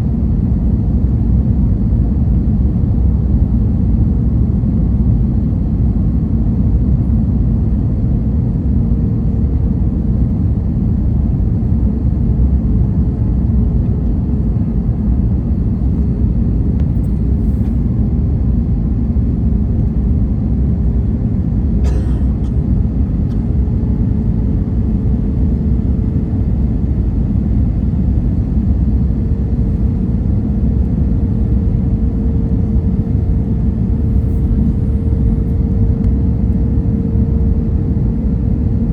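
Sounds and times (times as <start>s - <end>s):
airliner engines and airflow rumble: 0.0s - 38.9s
faint steady hum: 0.0s - 38.9s.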